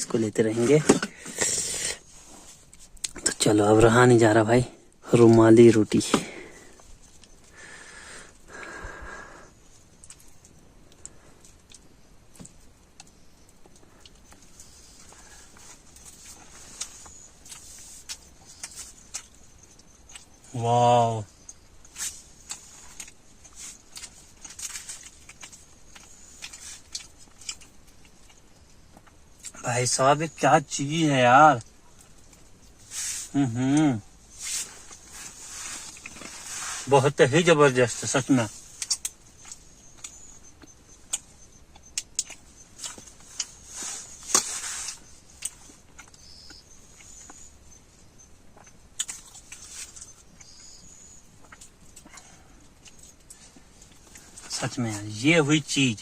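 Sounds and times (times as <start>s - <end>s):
person chewing food: 6.3s - 20.4s, 21.4s - 29.6s, 33.7s - 36.9s, 38.6s - 54.5s
short rustle: 34.3s - 37.1s, 42.8s - 45.8s.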